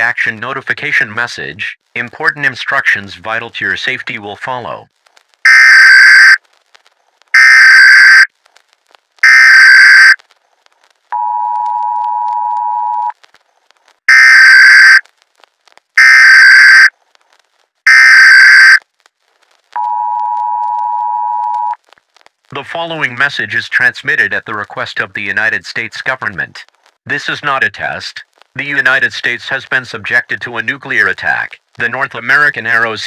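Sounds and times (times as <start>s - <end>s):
screeching digital data bursts: 5.5s - 6.4s, 7.4s - 8.3s, 9.2s - 10.2s, 14.1s - 15.0s, 16.0s - 16.9s, 17.9s - 18.8s.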